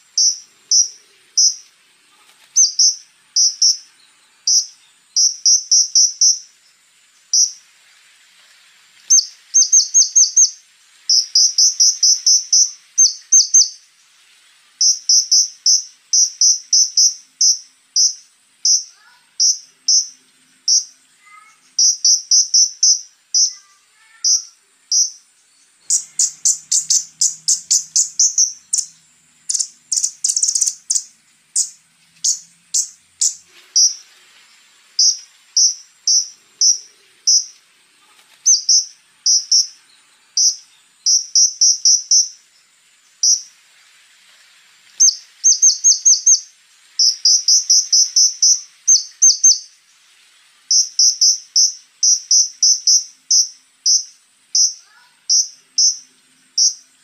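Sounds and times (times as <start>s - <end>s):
faint high insect buzz: 0.0s - 57.0s
bird calling sharp high notes: 25.8s - 34.0s.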